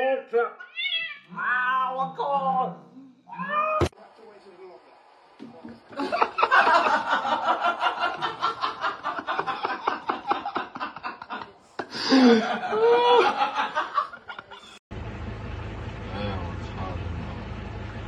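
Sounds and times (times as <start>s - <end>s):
person laughing: 6.0s - 14.8s.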